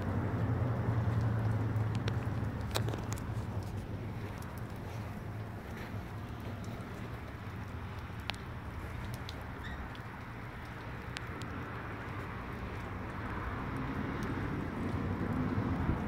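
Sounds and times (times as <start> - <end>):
sharp ticks: 6.2 - 15.4.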